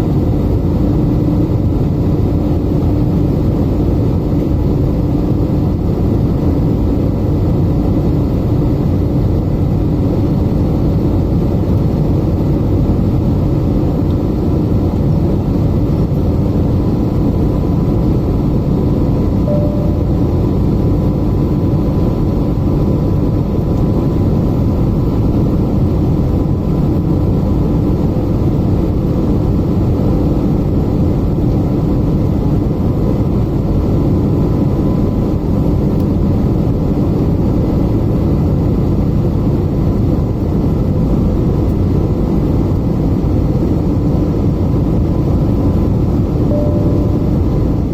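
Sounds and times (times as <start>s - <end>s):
airplane cabin engine drone: 0.0s - 47.9s
faint steady tone: 19.4s - 20.6s, 46.5s - 47.9s.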